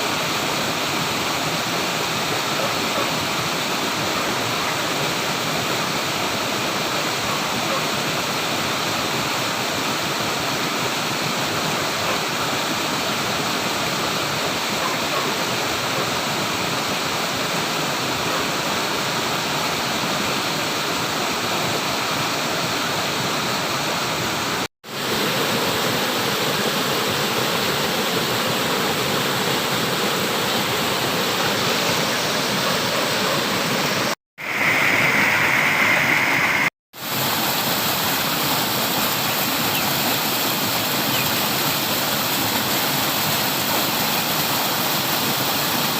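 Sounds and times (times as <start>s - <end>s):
flowing water rushing: 0.0s - 45.9s.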